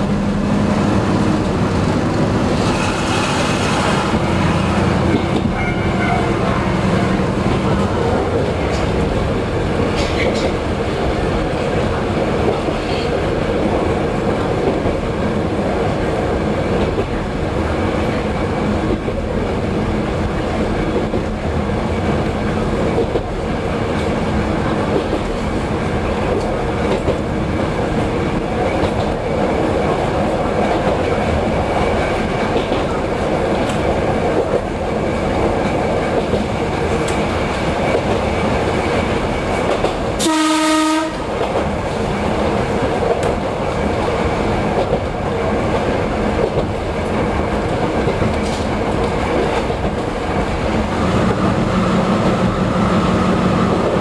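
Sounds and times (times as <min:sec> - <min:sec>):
railcar engine drone: 0:00.0 - 0:54.0
train horn blast: 0:05.5 - 0:06.5, 0:40.2 - 0:41.4.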